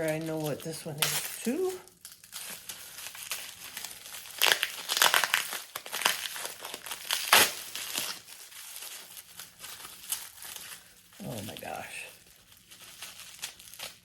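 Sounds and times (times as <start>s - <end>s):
packing wrap crinkling: 0.0s - 14.0s
wrap ripping: 0.0s - 14.0s.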